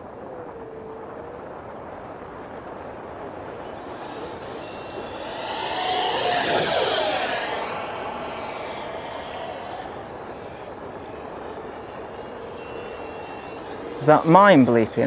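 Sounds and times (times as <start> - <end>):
model jet fan whine passing: 3.6 - 15.0.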